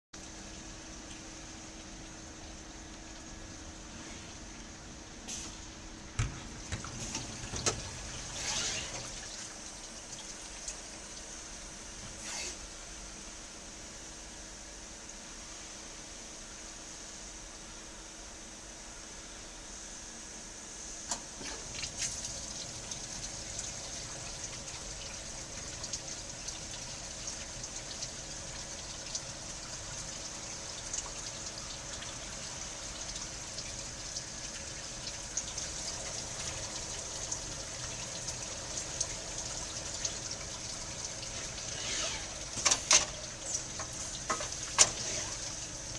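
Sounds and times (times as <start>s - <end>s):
liquid trickling: 0.2s - 5.0s, 6.4s - 11.9s, 21.3s - 45.9s.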